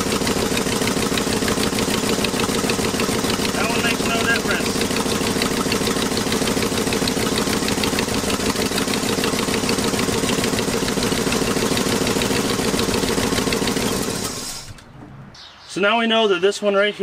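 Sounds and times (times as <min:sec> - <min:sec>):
engine idling unevenly: 0:00.0 - 0:14.8.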